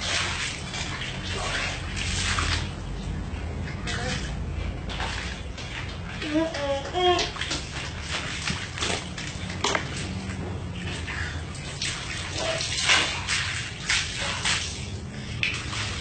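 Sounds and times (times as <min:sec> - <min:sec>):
water splashing and sloshing: 0:00.0 - 0:16.0
steady low hum: 0:07.7 - 0:16.0.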